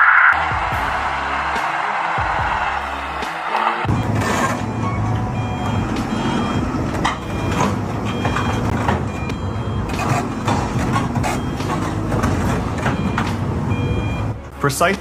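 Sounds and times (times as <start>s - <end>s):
heavy vehicle engine rumbling: 0.0s - 15.0s
background music: 0.4s - 15.0s
reversing alarm beeping: 3.8s - 14.5s.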